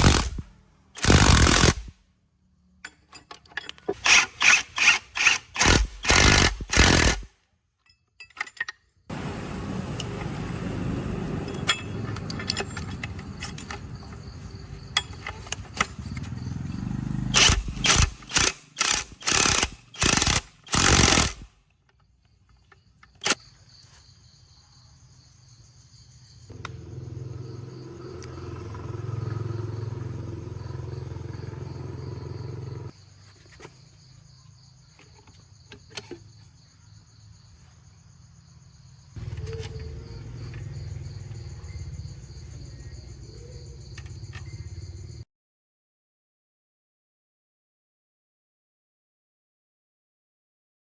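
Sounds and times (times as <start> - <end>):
steady mechanical noise: 0.0 - 1.9, 4.0 - 7.3, 9.1 - 21.5
crickets chirping: 0.0 - 7.2, 8.9 - 45.2
low engine hum: 9.1 - 13.4, 26.5 - 32.9.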